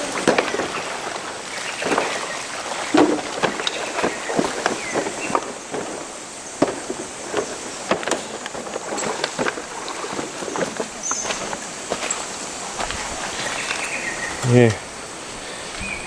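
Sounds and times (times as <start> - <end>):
steady hiss: 4.8 - 16.0.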